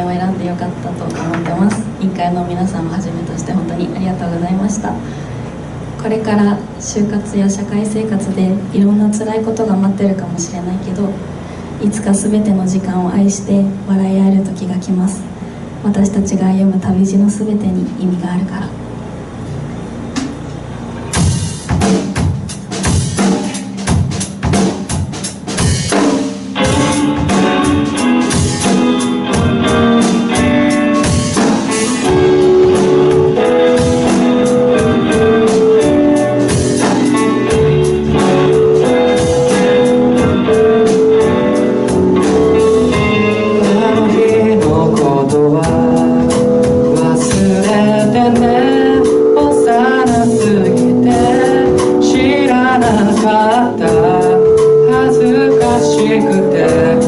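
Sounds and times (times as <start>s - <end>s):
live band music: 20.0s - 57.0s
drum hits: 20.1s - 49.3s.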